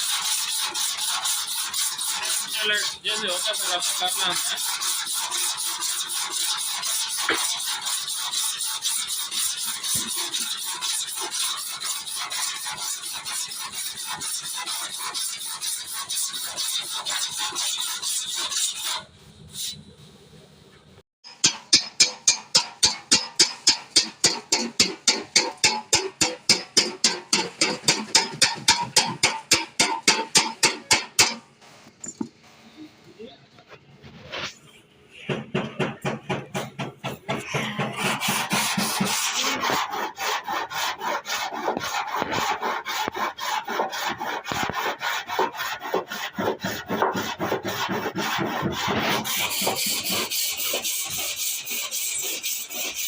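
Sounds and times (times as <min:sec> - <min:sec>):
scratchy rubbing on sheet metal: 0:00.0 - 0:19.8, 0:21.3 - 0:31.8, 0:33.7 - 0:34.8, 0:35.5 - 0:53.0
hammer striking metal panel: 0:21.3 - 0:31.4, 0:35.3 - 0:38.7.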